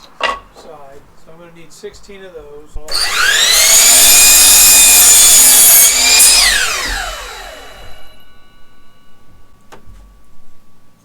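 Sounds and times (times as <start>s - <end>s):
electric power saw winding down: 2.9s - 8.9s.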